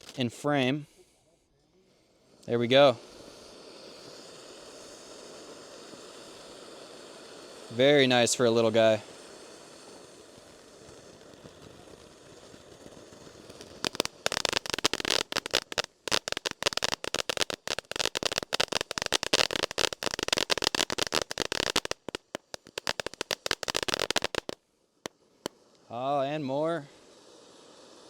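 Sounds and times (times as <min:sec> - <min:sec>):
firework crackling: 0:00.0 - 0:01.1, 0:01.8 - 0:28.0
faint firework hiss: 0:00.0 - 0:28.0.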